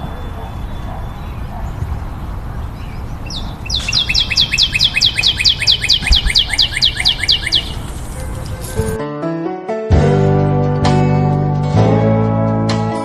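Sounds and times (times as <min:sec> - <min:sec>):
bird singing short falling notes: 0:03.3 - 0:08.0.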